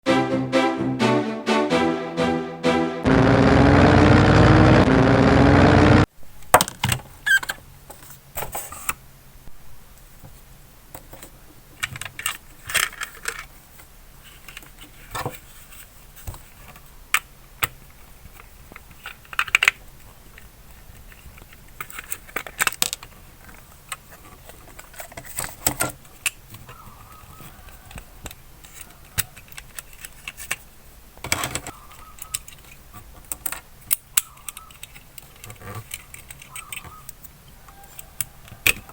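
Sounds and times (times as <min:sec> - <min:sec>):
loud intro music: 0:00.0 - 0:06.1
model car clicks and rattles: 0:10.9 - 0:26.7, 0:27.9 - 0:38.9.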